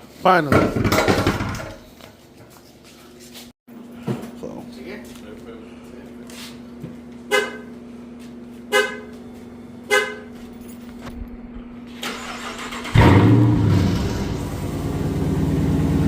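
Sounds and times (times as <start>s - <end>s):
car engine cranking and running: 11.2s - 16.0s.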